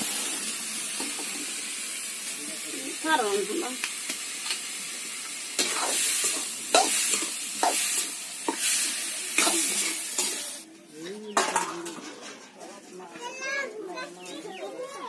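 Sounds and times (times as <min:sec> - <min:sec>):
fruit pieces sizzling in oil: 0:00.0 - 0:10.6.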